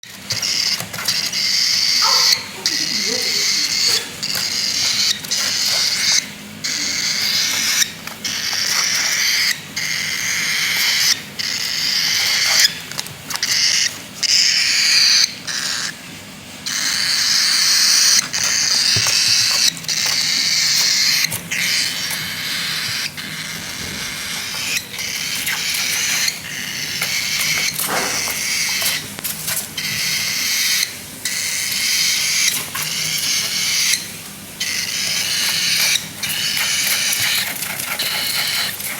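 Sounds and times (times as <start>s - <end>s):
cockatiel raspy begging calls: 0.4s - 16.0s, 16.6s - 29.1s.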